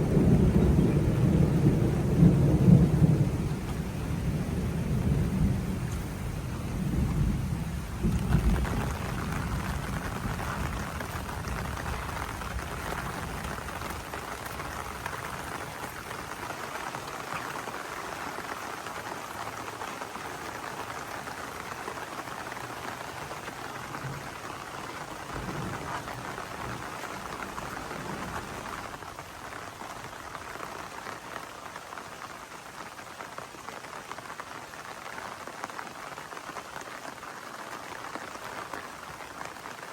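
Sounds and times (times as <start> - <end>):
low thunder rumble: 0.0 - 16.3, 23.9 - 29.4
heavy rain falling: 0.0 - 39.9.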